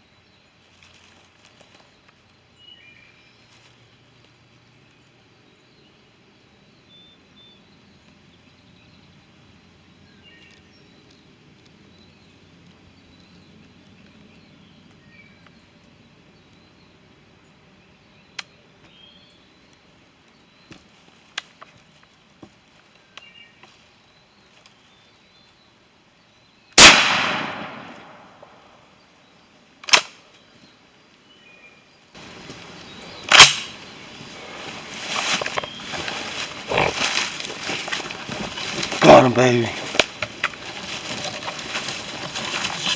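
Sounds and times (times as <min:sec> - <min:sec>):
rustling and handling noise: 0:00.6 - 0:02.3, 0:33.6 - 0:42.9
shotgun blast: 0:26.8 - 0:28.6
sharp loud bangs: 0:26.8 - 0:28.7.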